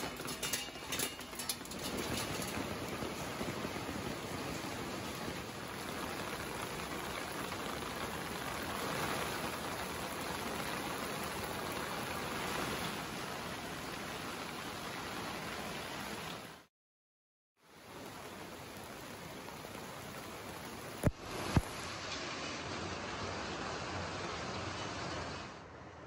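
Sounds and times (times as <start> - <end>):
rain splashing into puddles: 0.0 - 16.7, 17.6 - 25.3.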